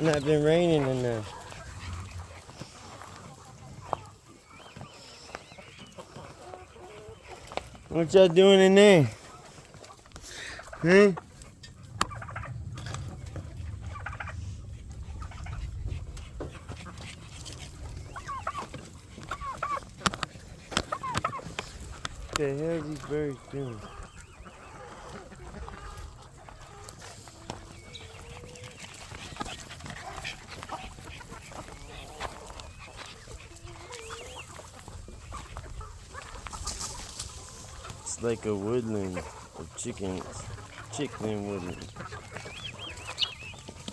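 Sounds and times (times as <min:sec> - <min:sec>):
chicken calls: 0:00.0 - 0:43.9
chickens clucking: 0:00.0 - 0:43.9
low rumble: 0:11.8 - 0:16.4.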